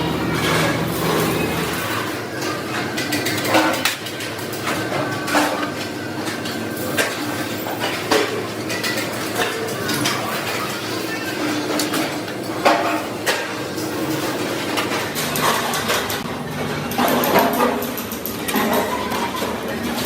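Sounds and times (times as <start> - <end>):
sheet steel clanking: 0.0 - 2.2
machinery running: 0.0 - 3.1.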